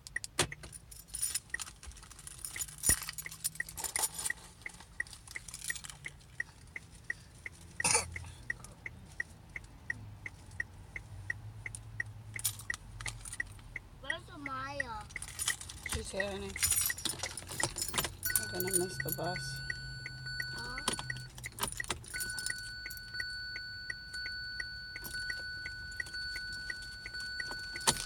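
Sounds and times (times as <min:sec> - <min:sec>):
keys jangling: 0:00.6 - 0:06.1, 0:15.1 - 0:19.7, 0:20.3 - 0:23.4, 0:25.0 - 0:28.0
car dashboard chime beeping: 0:13.4 - 0:28.0.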